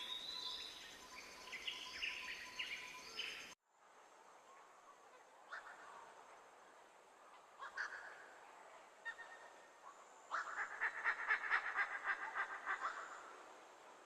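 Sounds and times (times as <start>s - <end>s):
faint forest background: 0.0s - 14.0s.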